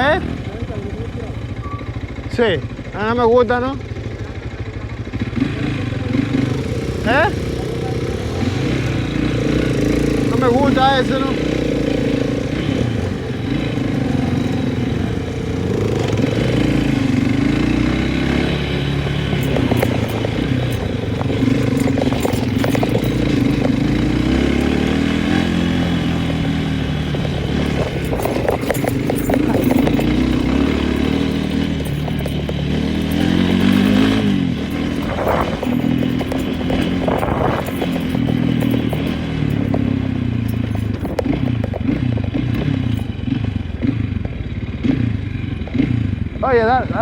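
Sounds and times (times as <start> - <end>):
engine running: 3.9 - 47.0
rattling and clattering: 9.6 - 44.4.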